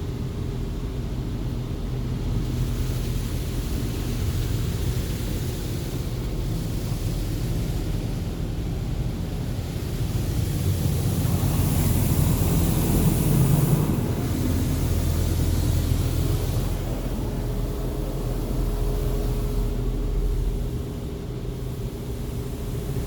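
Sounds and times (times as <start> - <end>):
car wash rumble: 0.2 - 23.0.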